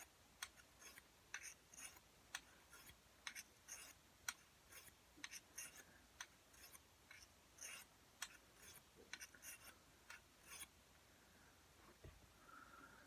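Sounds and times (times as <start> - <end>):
blade scraping on sharpening stone: 0.0 - 5.9, 6.5 - 10.7.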